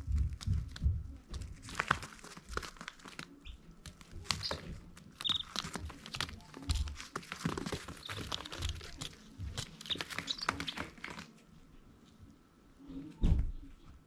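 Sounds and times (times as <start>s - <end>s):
chicks scratching and pecking: 0.0s - 11.6s
chicks peeping: 0.1s - 11.3s.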